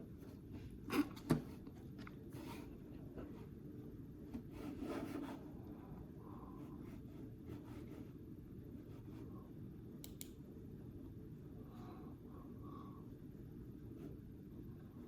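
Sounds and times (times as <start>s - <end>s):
low steady hum: 0.0s - 15.0s
sharp click: 10.0s - 10.4s.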